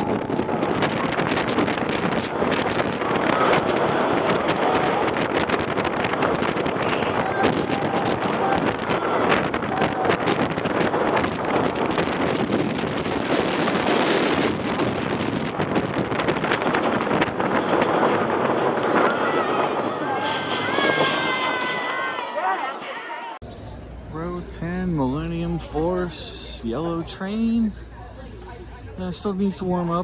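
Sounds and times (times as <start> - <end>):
wind rushing over microphone: 0.0 - 22.2
roller coaster train rumbling: 0.0 - 30.0.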